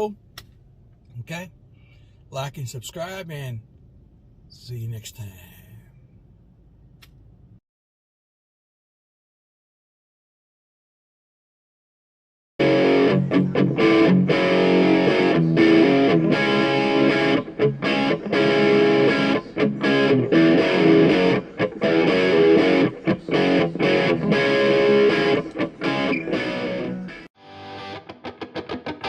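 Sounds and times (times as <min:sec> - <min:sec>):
distorted electric guitar music: 0:12.6 - 0:29.0.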